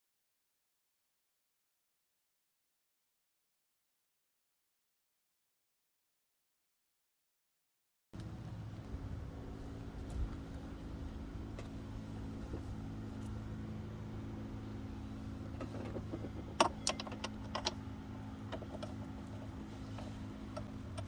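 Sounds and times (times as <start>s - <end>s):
car engine idling: 8.2s - 21.0s.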